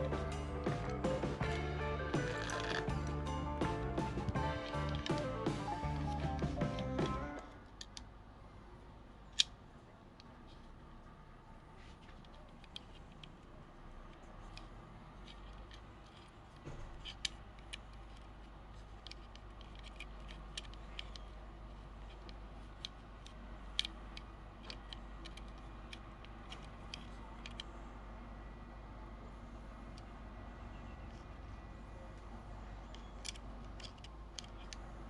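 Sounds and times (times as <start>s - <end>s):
low steady hum: 0.0s - 35.0s
small plastic parts clicking: 2.2s - 3.2s, 4.6s - 8.1s, 9.2s - 9.6s, 12.1s - 27.8s, 32.8s - 35.0s.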